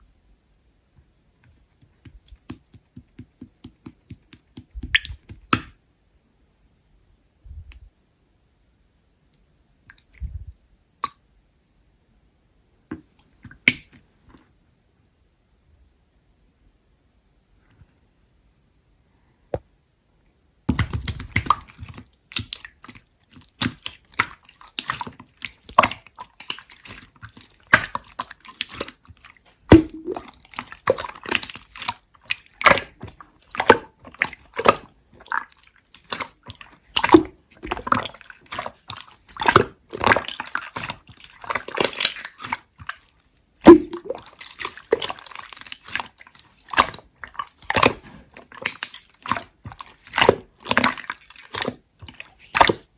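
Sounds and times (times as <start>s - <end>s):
slime squeezed by hand: 1.8s - 5.7s, 20.7s - 52.9s.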